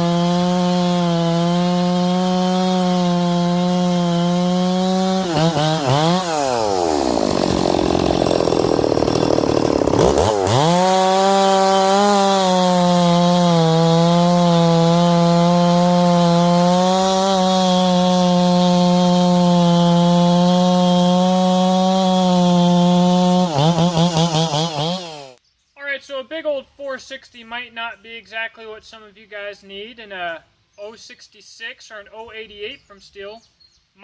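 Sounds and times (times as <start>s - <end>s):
chainsaw running: 0.0s - 25.4s.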